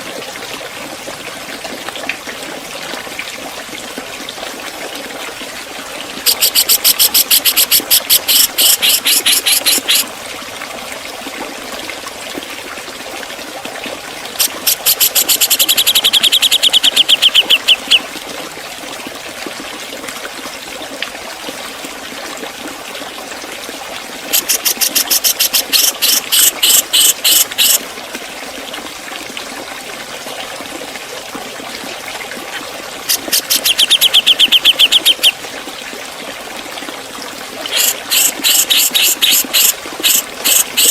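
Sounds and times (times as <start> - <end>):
trickling water hiss: 0.0 - 40.9
bird calling with sharp rapid notes: 6.3 - 10.1, 14.4 - 18.0, 24.4 - 27.8, 33.1 - 35.4, 37.7 - 40.9.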